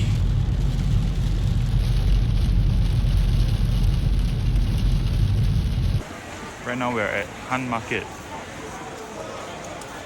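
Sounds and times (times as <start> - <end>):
car road and engine rumble: 0.0 - 6.0.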